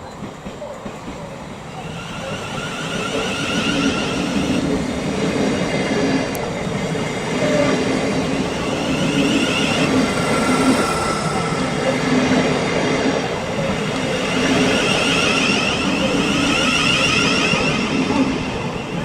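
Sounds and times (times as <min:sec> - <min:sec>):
train rumbling along track: 0:00.0 - 0:19.0
faint wavering whine: 0:08.4 - 0:13.6.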